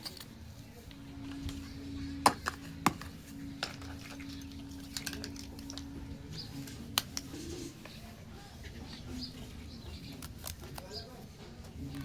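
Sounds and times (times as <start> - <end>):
faint low hum: 0.0 - 12.0
plastic toy pieces clicking: 10.0 - 11.0.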